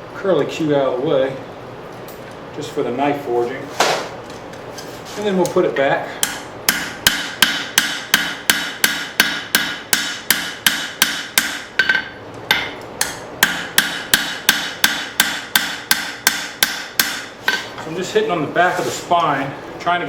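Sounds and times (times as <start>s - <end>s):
hammer ringing on steel anvil: 6.2s - 17.3s.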